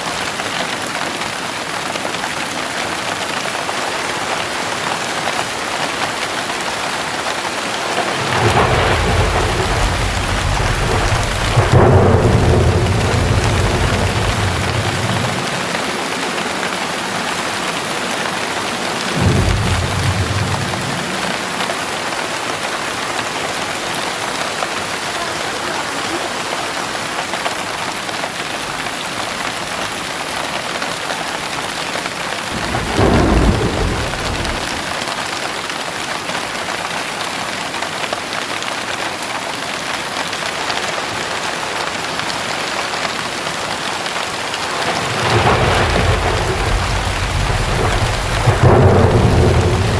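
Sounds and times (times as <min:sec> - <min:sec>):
heavy rain pouring: 0:00.0 - 0:49.9
thunder rumbling: 0:04.1 - 0:25.3, 0:32.2 - 0:35.1, 0:44.0 - 0:49.9.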